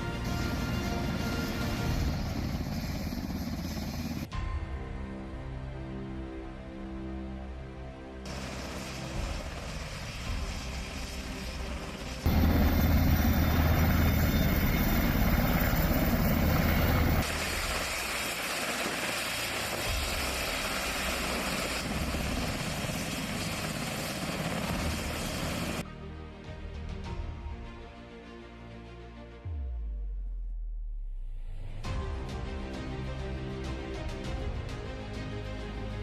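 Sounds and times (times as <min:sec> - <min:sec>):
helicopter rotor and engine: 0:00.0 - 0:04.3, 0:08.3 - 0:25.8.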